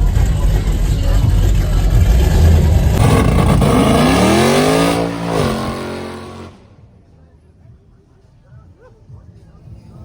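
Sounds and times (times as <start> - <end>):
car engine with rough exhaust rumble: 0.0 - 7.6.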